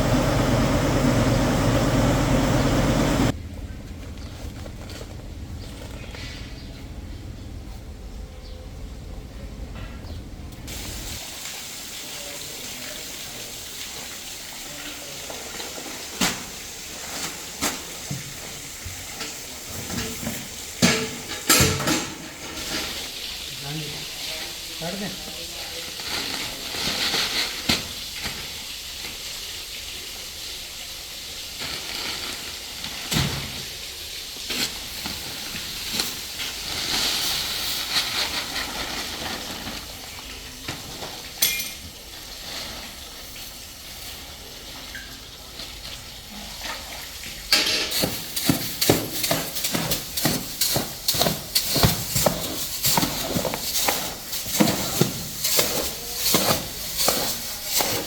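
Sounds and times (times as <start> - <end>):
steady hiss: 10.7 - 26.3.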